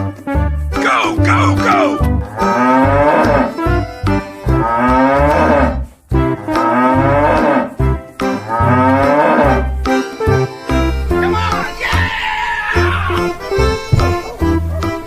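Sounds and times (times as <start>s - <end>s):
music with steady beat: 0.0s - 11.8s, 13.1s - 15.0s
cow mooing: 0.9s - 3.8s, 4.5s - 5.9s, 6.5s - 7.7s, 8.5s - 9.7s.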